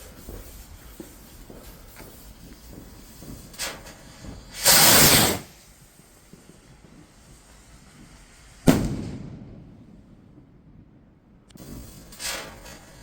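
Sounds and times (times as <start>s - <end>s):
firework rocket hiss: 0.0s - 10.2s, 11.5s - 13.0s
firework bang: 3.5s - 13.0s.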